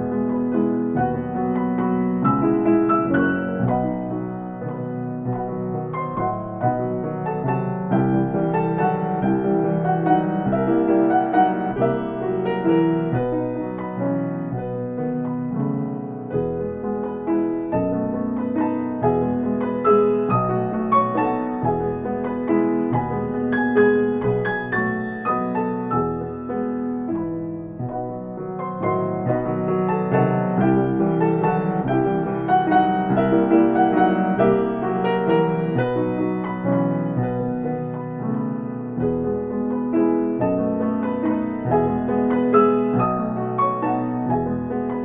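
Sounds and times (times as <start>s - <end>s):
piano music: 0.0s - 45.0s.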